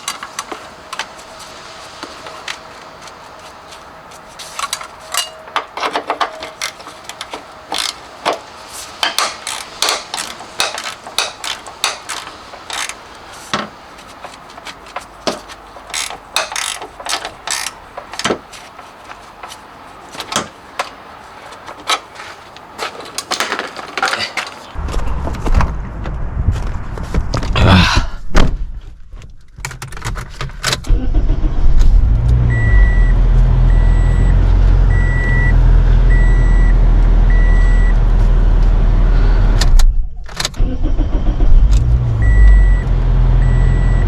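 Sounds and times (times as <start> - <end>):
hand tools clicking on metal: 4.4 - 24.8
loud low rumble: 24.8 - 29.0.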